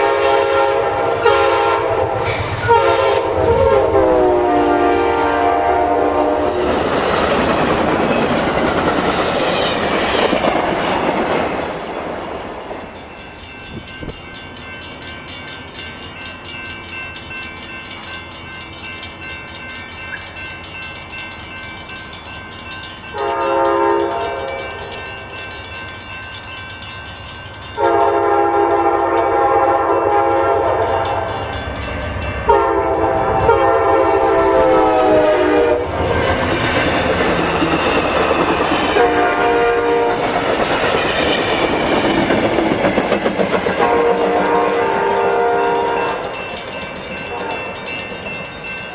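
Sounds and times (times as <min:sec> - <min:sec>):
locomotive horn blasts: 0:00.0 - 0:06.7, 0:23.1 - 0:25.0, 0:27.8 - 0:31.4, 0:32.4 - 0:36.3, 0:39.0 - 0:40.4, 0:43.8 - 0:46.2, 0:47.2 - 0:47.8
passing train rumble: 0:00.0 - 0:48.9.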